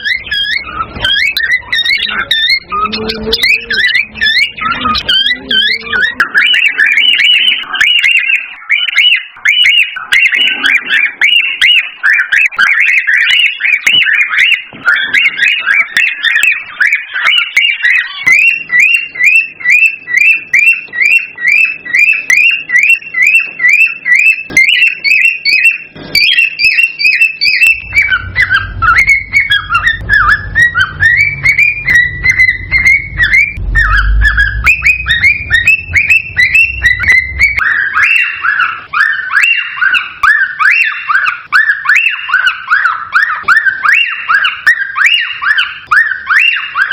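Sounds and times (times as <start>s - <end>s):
cockatiels chirping and whistling: 0.0s - 46.9s
low rumble: 27.8s - 37.6s.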